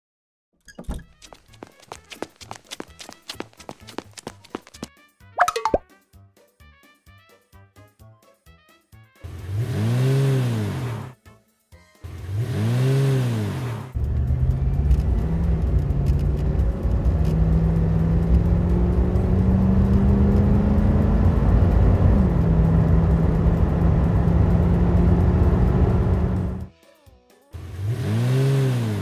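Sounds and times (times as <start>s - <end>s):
cartoon pitch-bending sound effect: 5.4s - 5.8s
heavy vehicle engine running: 13.4s - 26.7s.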